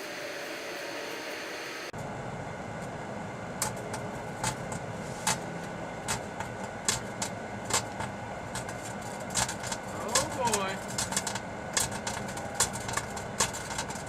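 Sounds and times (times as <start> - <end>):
microwave oven humming: 0.0 - 14.0
battery snapping and crackling: 6.0 - 14.0.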